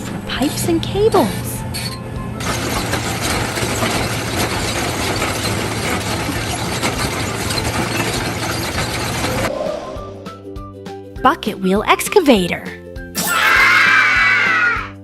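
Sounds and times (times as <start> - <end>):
loud mechanical clatter: 1.7 - 9.5
trencher engine: 1.7 - 9.5.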